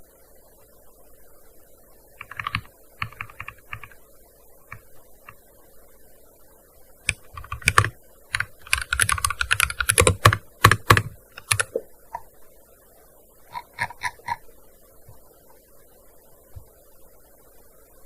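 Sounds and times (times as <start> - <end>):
keyboard keystrokes: 2.2 - 4.0, 7.1 - 11.8.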